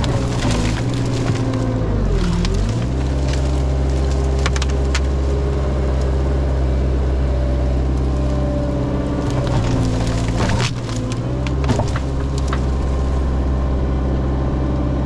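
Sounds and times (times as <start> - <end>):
wood snapping: 0.0 - 6.2, 9.1 - 13.4
diesel engine running hard: 0.0 - 15.0.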